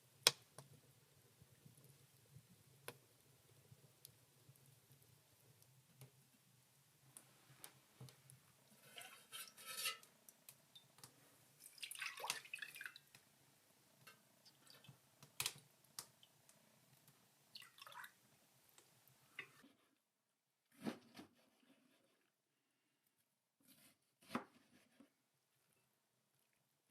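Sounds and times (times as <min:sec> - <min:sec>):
water splashing: 0:11.6 - 0:13.0.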